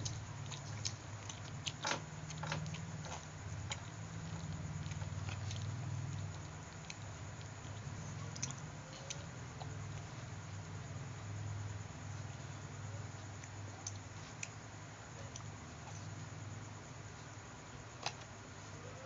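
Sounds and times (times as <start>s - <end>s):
person chewing food: 0.0s - 10.5s, 13.1s - 16.4s
steady low hum: 0.0s - 19.0s.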